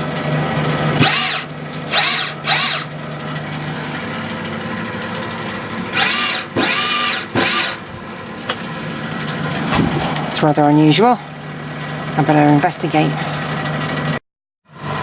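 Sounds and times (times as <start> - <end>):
welder fan humming: 0.0 - 10.5
wire-feed motor whirring: 0.9 - 10.4.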